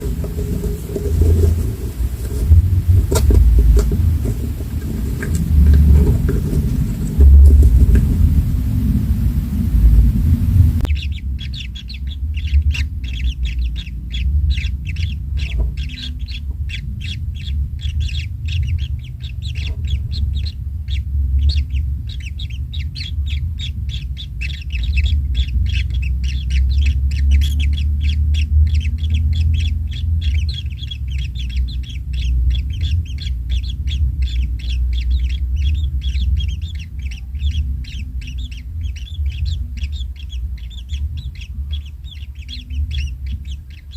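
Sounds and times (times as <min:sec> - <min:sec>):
nestlings calling: 0:00.0 - 0:43.9
steady low rumble: 0:00.0 - 0:43.9.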